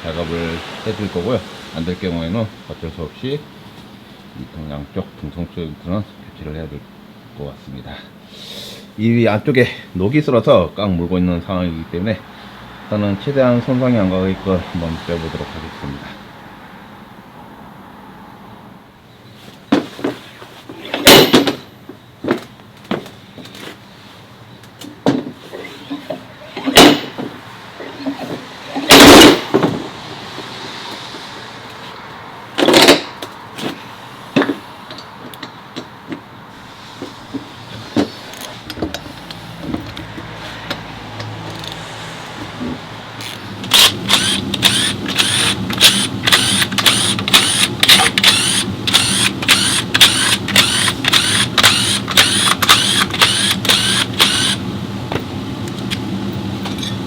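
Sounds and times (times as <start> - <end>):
machine hum: 34.9 - 57.0.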